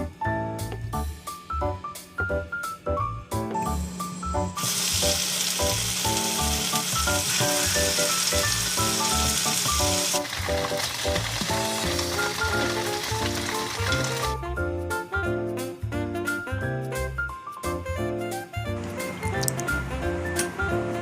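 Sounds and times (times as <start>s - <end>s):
light background music with piano: 0.0s - 21.0s
tofu sizzling in a pan: 4.6s - 14.4s.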